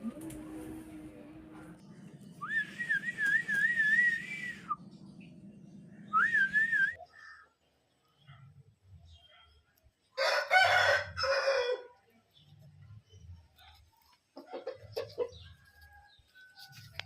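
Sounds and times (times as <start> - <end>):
low steady hum: 0.0 - 7.4
wavering whistle: 2.4 - 4.8, 6.1 - 7.0.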